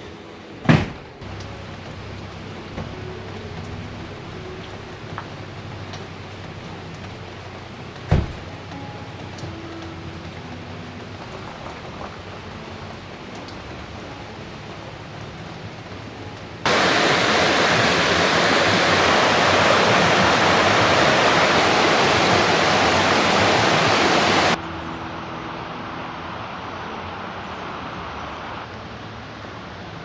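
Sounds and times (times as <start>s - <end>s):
rush of water: 16.6s - 24.6s, 25.4s - 30.0s
steady hiss: 16.7s - 24.6s.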